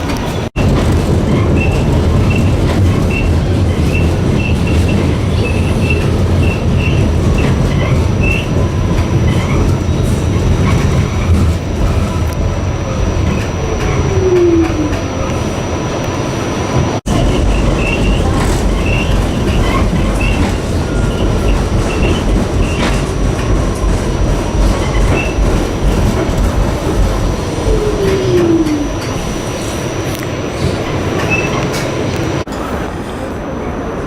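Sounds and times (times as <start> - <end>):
subway train rumbling: 0.0 - 34.0
falling whine: 6.0 - 32.5
high wheel squeals: 16.6 - 23.4.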